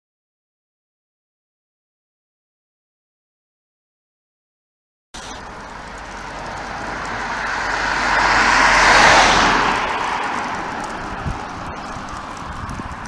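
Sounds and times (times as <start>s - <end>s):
road vehicle passing by: 5.2s - 13.0s.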